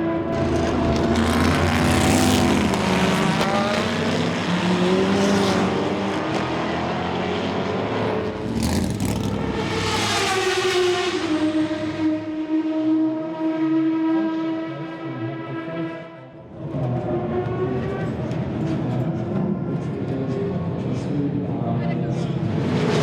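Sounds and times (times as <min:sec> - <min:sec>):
racing car engine passing: 0:00.3 - 0:14.6.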